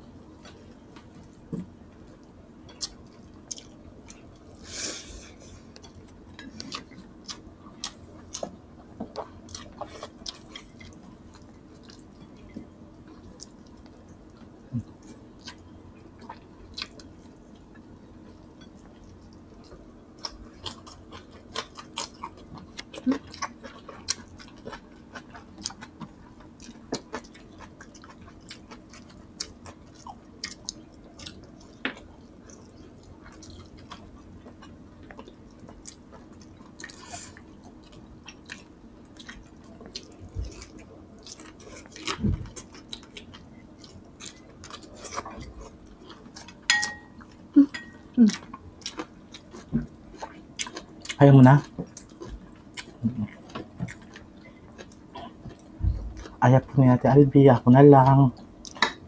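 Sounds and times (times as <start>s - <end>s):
chewing and lip smacking: 5.7s - 17.9s, 18.6s - 56.4s
soft low thumps: 55.8s - 56.2s.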